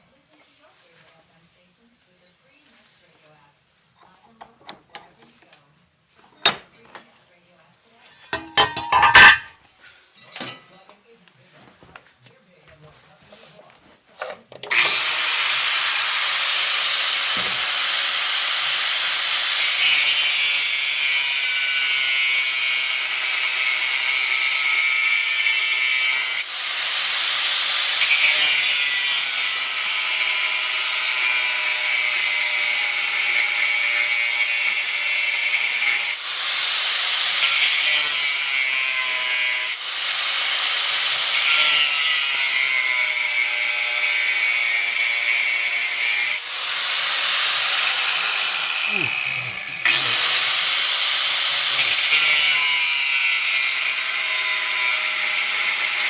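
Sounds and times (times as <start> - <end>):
power tool cutting steel: 8.3 - 9.6, 14.7 - 56.0.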